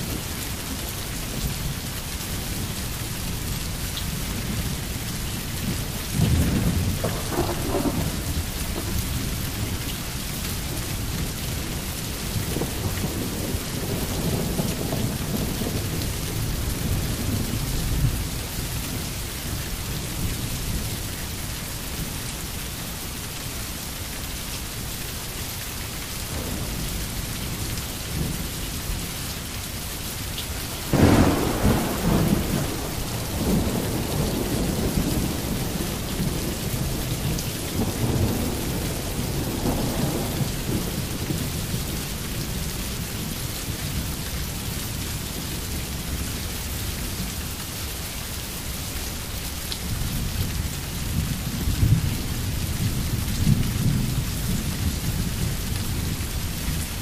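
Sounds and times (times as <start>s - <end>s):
steady rain: 0.0s - 57.0s
thunder clap and rumble: 5.6s - 9.9s, 10.5s - 19.0s, 26.3s - 29.0s, 30.6s - 43.1s, 50.1s - 57.0s.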